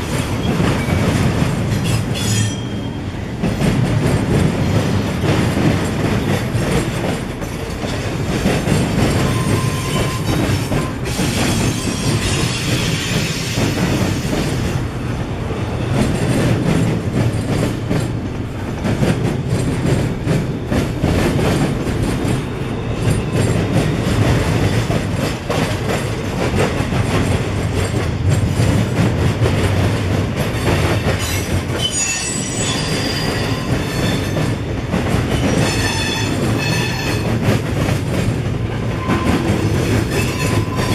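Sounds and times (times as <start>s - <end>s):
freight train rumbling past: 0.0s - 40.9s
wheels clacking over rails: 0.0s - 40.9s
high wheel squeal: 9.2s - 13.5s, 31.3s - 34.3s, 35.6s - 37.3s.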